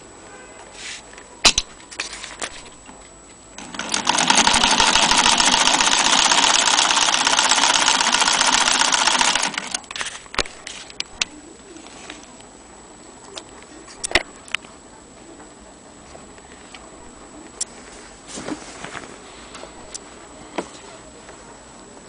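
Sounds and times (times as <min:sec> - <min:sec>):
sewing machine rattling: 0:03.6 - 0:10.1.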